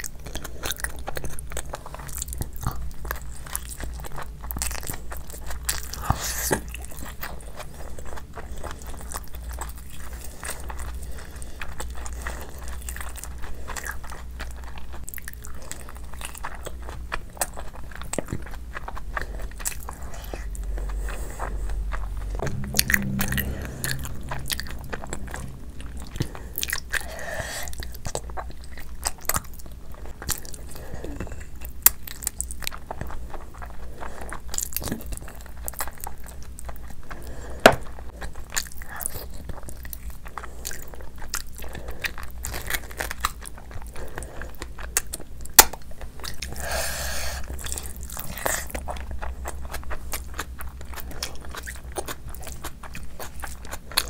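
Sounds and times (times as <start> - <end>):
gnawing on meat bone: 0.0 - 22.4
wet chewing and lip-smacking: 0.0 - 54.0.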